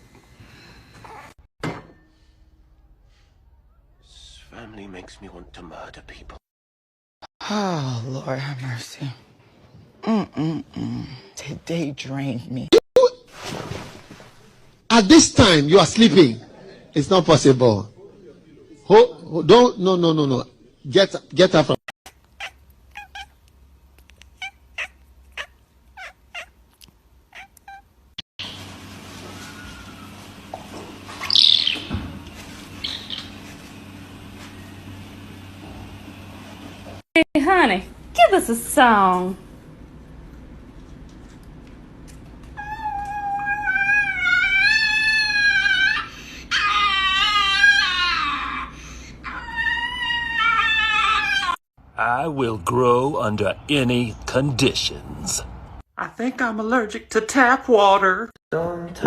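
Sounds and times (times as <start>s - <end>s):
cat mewing: 22.1s - 23.4s, 24.0s - 27.9s
cat yowling: 22.3s - 23.4s, 24.2s - 26.6s, 27.3s - 27.9s, 42.6s - 51.6s.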